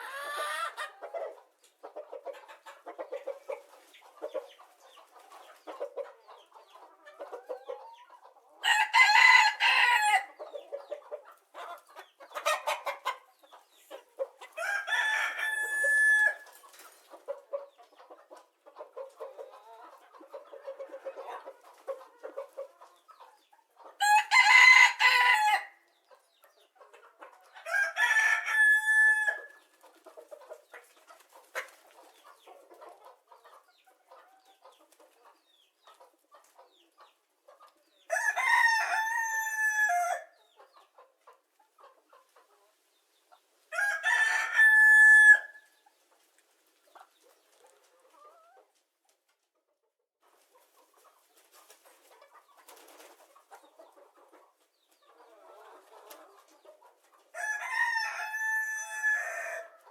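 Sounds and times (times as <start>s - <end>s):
rooster crowing: 8.6s - 10.3s, 14.6s - 16.4s, 24.0s - 25.8s, 27.7s - 29.6s, 38.1s - 40.3s, 43.7s - 45.6s, 57.4s - 59.7s.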